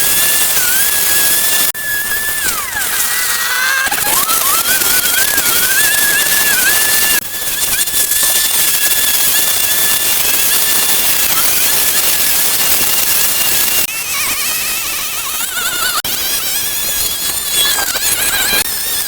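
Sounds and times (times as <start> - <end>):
high-pitched machine whine: 0.0 - 19.0.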